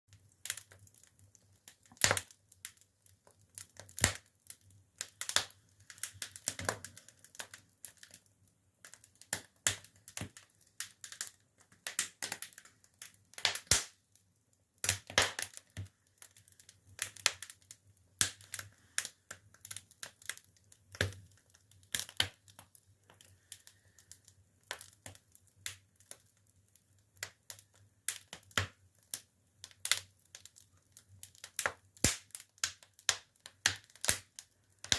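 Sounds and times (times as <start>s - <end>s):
firewood crackling and popping: 0.1s - 34.9s.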